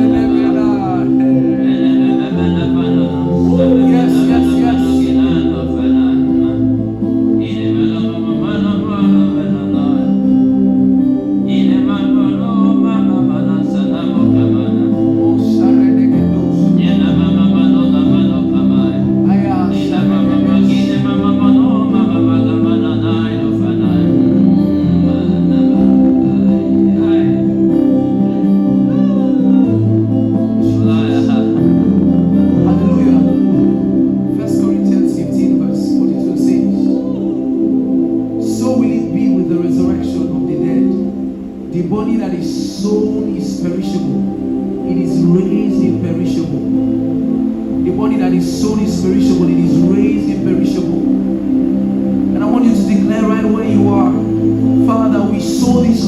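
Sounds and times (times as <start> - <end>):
bass line: 0.0 - 56.0
person singing: 0.0 - 56.0
sustained chords: 0.0 - 56.0.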